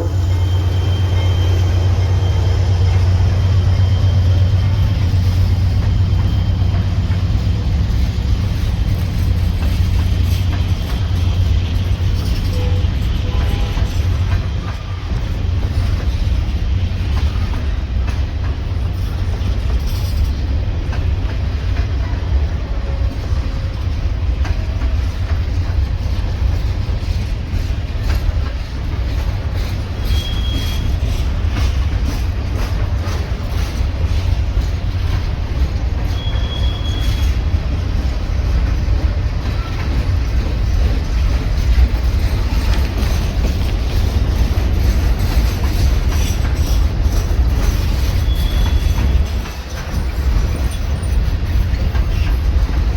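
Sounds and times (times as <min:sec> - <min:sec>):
high wheel squeals: 0:00.0 - 0:07.3, 0:30.0 - 0:31.8, 0:36.0 - 0:37.5, 0:47.7 - 0:49.6
train rumbling past: 0:00.0 - 0:52.9
wheels clattering over rail joints: 0:02.8 - 0:52.9.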